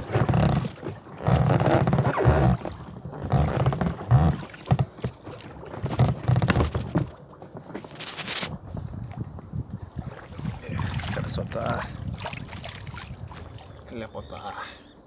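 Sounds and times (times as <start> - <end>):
wind buffeting microphone: 8.5 - 14.6.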